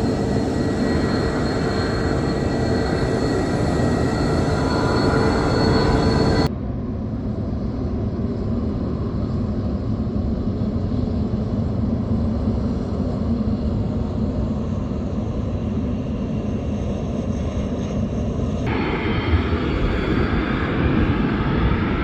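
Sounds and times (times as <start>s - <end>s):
faint high whine: 0.0s - 6.5s
jet engines rumbling: 0.0s - 6.5s, 18.6s - 22.0s.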